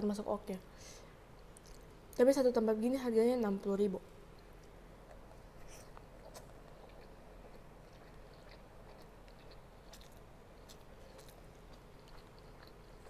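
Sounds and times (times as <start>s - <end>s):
faint chewing: 1.4s - 2.0s, 4.3s - 13.0s.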